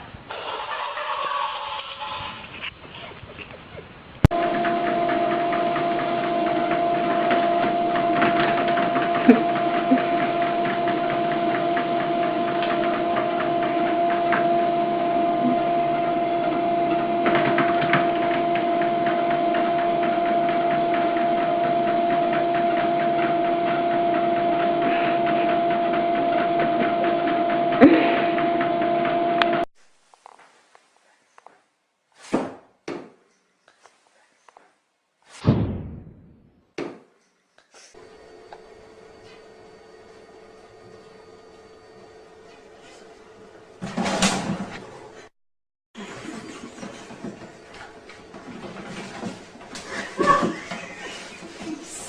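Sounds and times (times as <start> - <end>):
machine drone with two-note whine: 4.3 - 29.6, 38.0 - 44.6.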